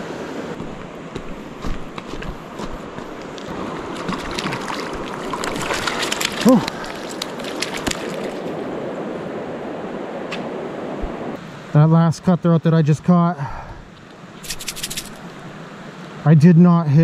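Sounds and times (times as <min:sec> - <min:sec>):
river water flowing: 0:00.0 - 0:11.8, 0:14.0 - 0:16.2
small splashes and drips: 0:04.0 - 0:08.5
person grunting: 0:06.4 - 0:06.7.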